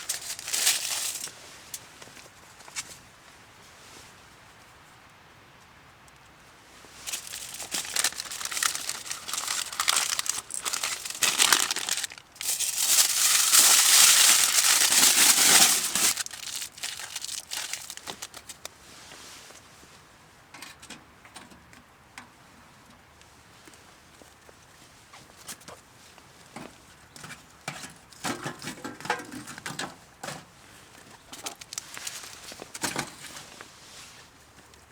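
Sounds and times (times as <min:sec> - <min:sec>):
crinkly material crumpling: 0:00.0 - 0:03.0, 0:06.8 - 0:20.0, 0:30.7 - 0:34.9.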